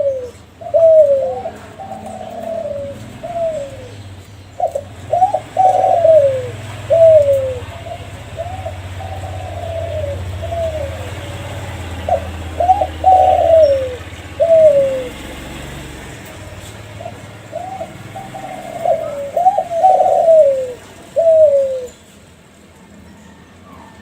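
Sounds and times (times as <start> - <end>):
dove cooing: 0.0 - 22.1.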